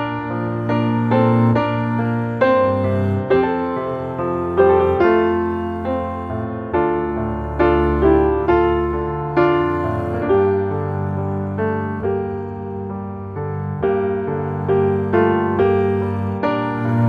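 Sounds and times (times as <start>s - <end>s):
slow gentle piano piece: 0.0s - 17.0s.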